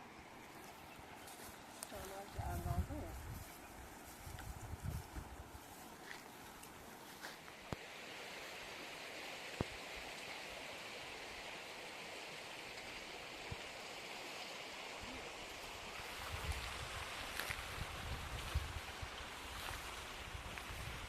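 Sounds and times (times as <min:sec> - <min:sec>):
flowing stream rushing: 0:05.4 - 0:21.0.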